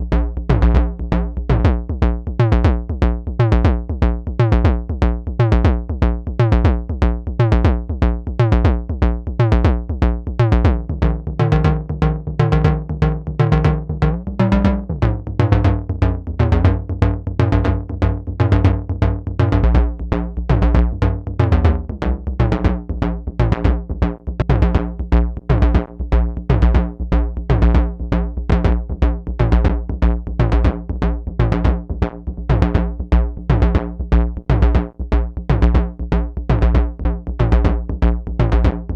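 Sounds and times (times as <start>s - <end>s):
drum synthesizer hits: 10.4s - 17.5s
pitched synth tones: 11.0s - 16.7s.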